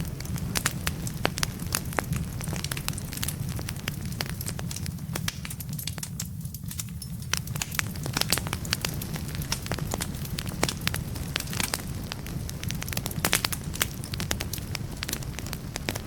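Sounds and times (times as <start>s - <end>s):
firewood crackling and popping: 0.0s - 16.0s
low fire rumble: 0.0s - 16.0s.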